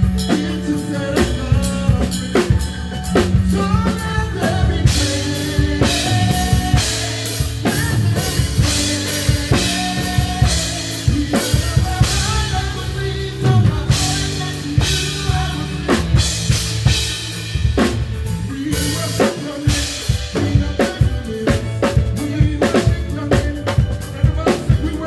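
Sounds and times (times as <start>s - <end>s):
live band playing: 0.0s - 25.0s.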